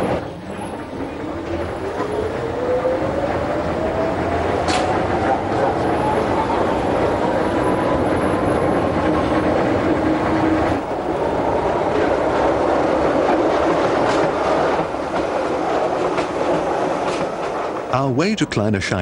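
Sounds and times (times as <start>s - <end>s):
electric train humming: 0.0s - 19.0s
train wheel clicks: 3.3s - 18.0s.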